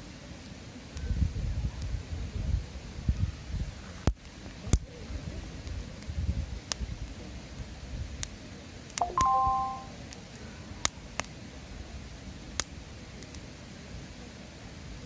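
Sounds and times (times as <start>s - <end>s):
bonfire crackling and popping: 4.0s - 4.9s, 5.5s - 9.0s, 10.1s - 11.4s, 12.5s - 13.5s
short ringing tone: 9.0s - 9.9s.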